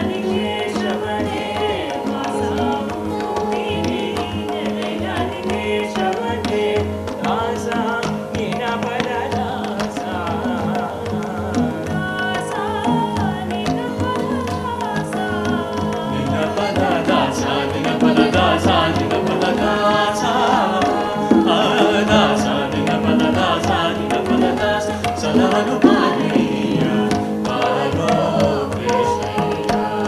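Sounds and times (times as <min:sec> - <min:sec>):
guitar: 0:00.0 - 0:30.0
ornamented melody: 0:00.0 - 0:30.0
tabla and drum kit beat: 0:00.0 - 0:30.0.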